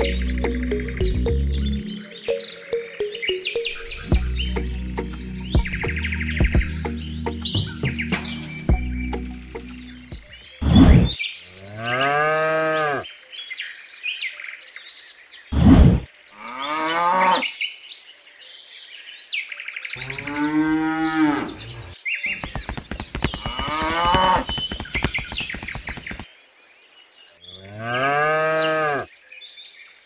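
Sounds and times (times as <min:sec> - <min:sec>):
cow mooing: 0:20.0 - 0:22.0, 0:27.6 - 0:29.1
rapid clicking: 0:22.3 - 0:26.3.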